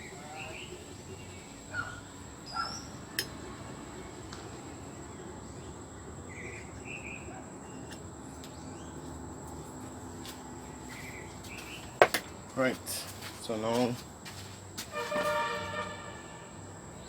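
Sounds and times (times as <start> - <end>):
bird chirps: 0.0 - 3.2, 10.9 - 12.0.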